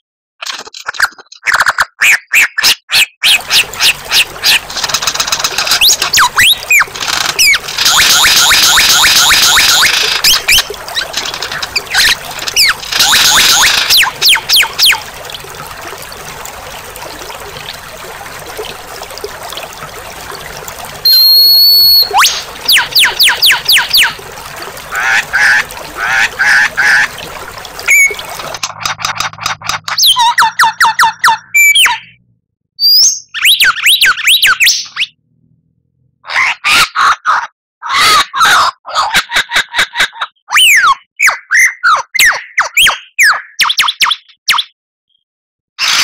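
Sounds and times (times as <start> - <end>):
songbird chatter trills and whistles: 21.0 - 24.2.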